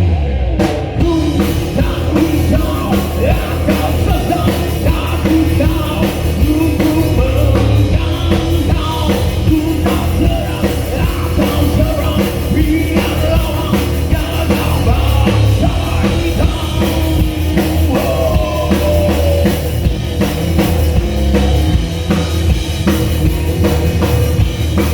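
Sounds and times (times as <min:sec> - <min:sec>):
live rock band: 0:00.0 - 0:24.9
drum kit beat: 0:00.6 - 0:24.9
person singing: 0:01.0 - 0:19.8.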